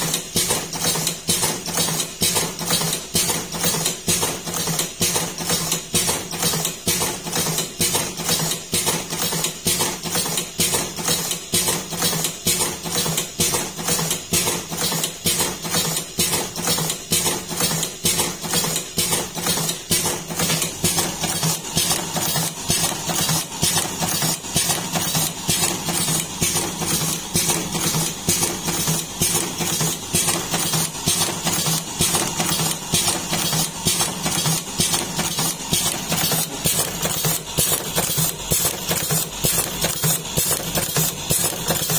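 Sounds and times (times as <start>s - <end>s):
mechanical clatter: 0.0s - 41.9s
machine motor hum: 17.5s - 41.9s.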